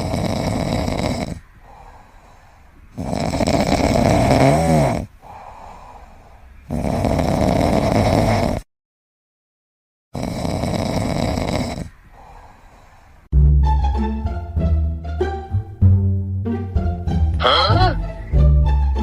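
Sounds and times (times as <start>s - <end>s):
pet snoring: 0.0s - 1.5s, 2.9s - 5.4s, 6.6s - 8.7s, 10.2s - 12.3s.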